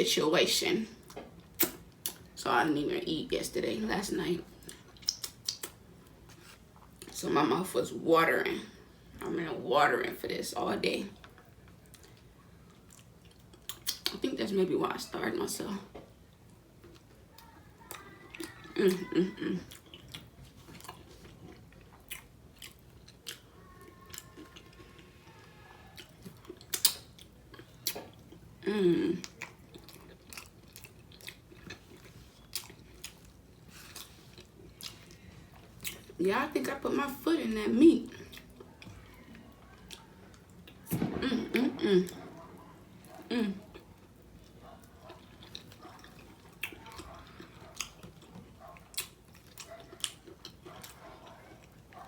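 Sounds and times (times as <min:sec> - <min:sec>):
wet mouth clicks and smacks: 0:01.5 - 0:02.2, 0:04.7 - 0:05.8, 0:13.6 - 0:14.2, 0:26.0 - 0:27.2
sharp mouth smacks: 0:01.6 - 0:01.8
person chewing food: 0:04.5 - 0:07.2, 0:11.2 - 0:14.1, 0:16.0 - 0:36.2, 0:38.1 - 0:52.0.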